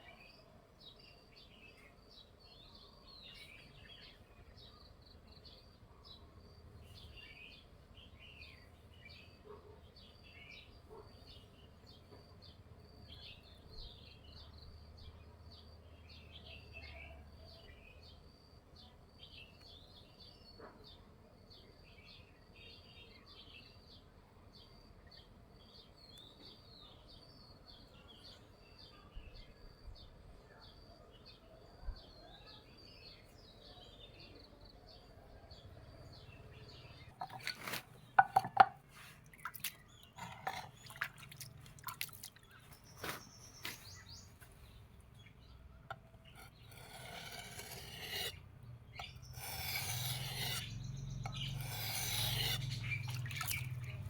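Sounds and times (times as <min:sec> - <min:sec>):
small birds chirping: 0:18.8 - 0:54.0.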